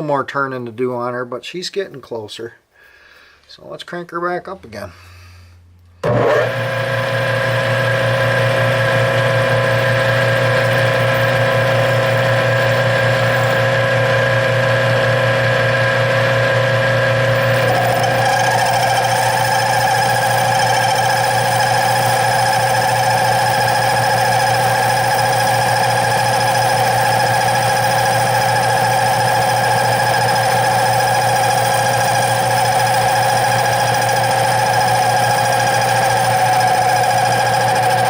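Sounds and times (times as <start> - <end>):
lathe motor hum and whine: 6.0 - 38.0
wavering higher tone: 7.0 - 13.6.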